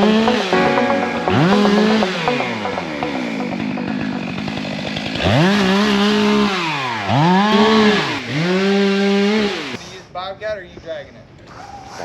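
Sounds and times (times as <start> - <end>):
chainsaw revving: 3.5 - 9.8.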